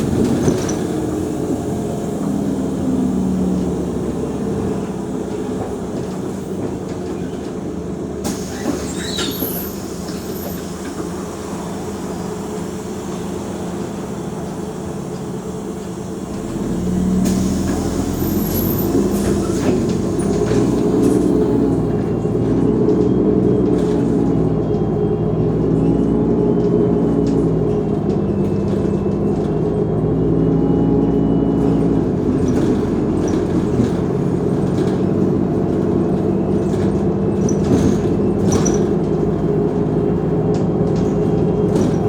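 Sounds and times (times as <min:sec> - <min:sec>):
bus diesel engine rumble: 0:00.0 - 0:42.0
faint high squeaks: 0:08.6 - 0:10.6.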